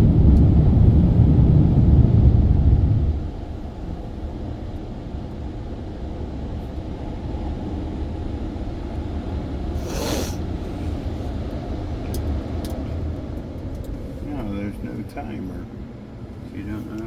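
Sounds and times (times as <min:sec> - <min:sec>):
car wash dryer blowers rumbling: 0:00.0 - 0:17.0
short hiss: 0:09.8 - 0:10.8.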